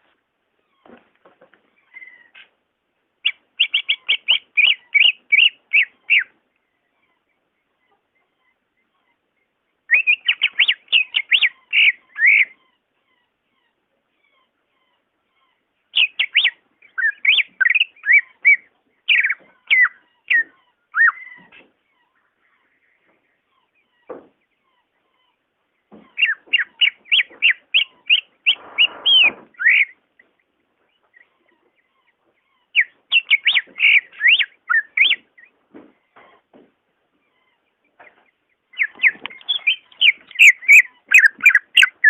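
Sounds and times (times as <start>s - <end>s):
bird singing whistled notes: 3.2s - 6.3s, 9.9s - 12.6s, 16.0s - 21.4s, 26.2s - 30.0s, 32.8s - 35.5s, 38.8s - 42.0s.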